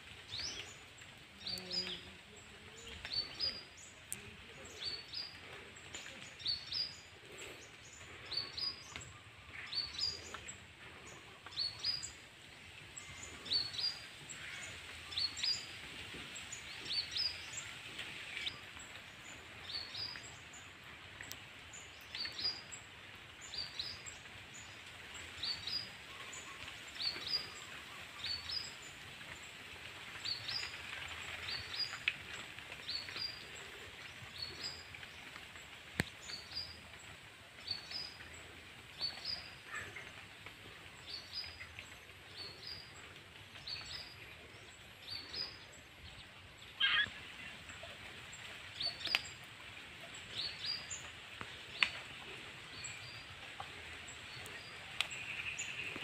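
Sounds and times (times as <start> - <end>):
faint outdoor hiss: 0.0 - 56.0
bird chirping: 43.6 - 47.2.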